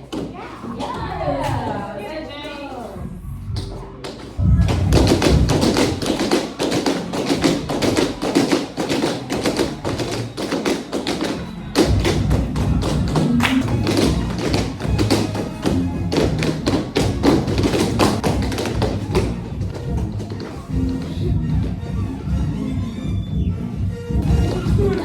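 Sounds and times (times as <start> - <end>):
backing music with bass: 3.0 - 6.3, 7.3 - 8.3, 11.3 - 25.0
tap shoes on floor: 3.6 - 21.8.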